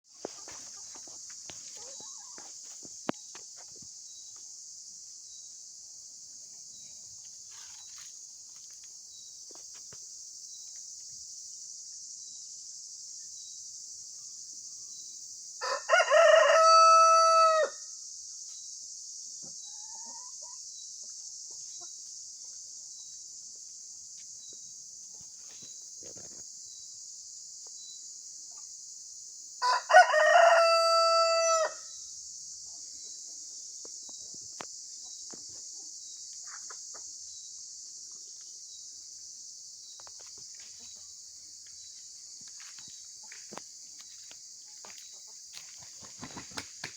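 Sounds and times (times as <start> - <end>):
rooster crowing: 15.6 - 17.8, 29.6 - 31.9.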